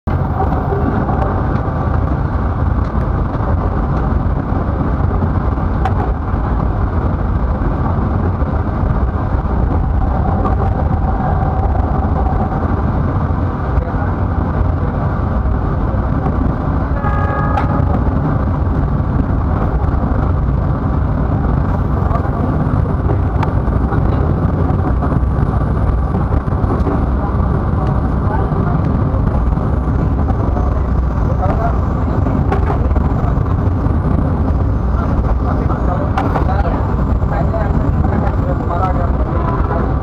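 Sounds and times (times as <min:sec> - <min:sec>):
train rumbling on rails: 0:00.0 - 0:40.0
short horn-like tone: 0:16.9 - 0:18.1, 0:39.2 - 0:40.0.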